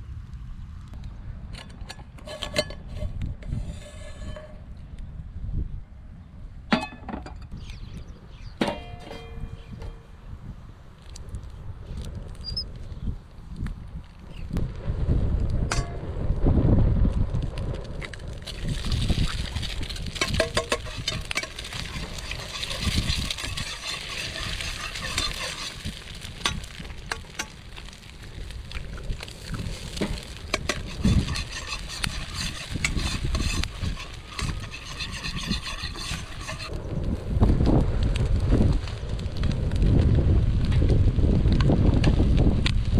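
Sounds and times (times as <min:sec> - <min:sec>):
wind rumbling on microphone: 0:00.0 - 0:42.9
food sizzling in a wok: 0:18.5 - 0:27.4, 0:29.3 - 0:36.7.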